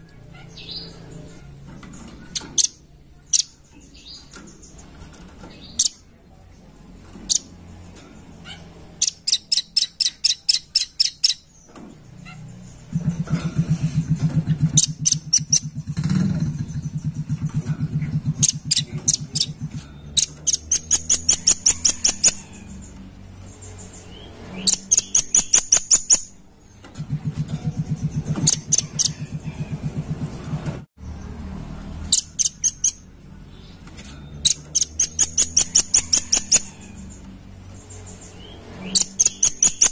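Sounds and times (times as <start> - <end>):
bird chattering calls: 8.4 - 11.5, 12.2 - 22.9, 23.6 - 26.3, 27.8 - 30.0, 32.1 - 33.1, 34.4 - 37.1, 37.8 - 39.9.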